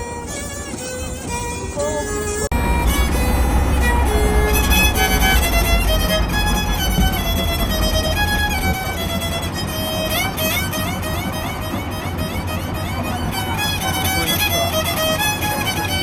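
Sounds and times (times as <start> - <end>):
violin melody: 0.0 - 16.0
low rumble: 1.8 - 11.0.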